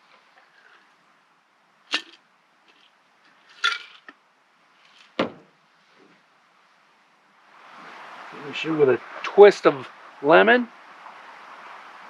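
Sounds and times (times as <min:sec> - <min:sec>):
bar tools and glassware clinking: 0:03.5 - 0:04.1
low thump: 0:05.2 - 0:05.5.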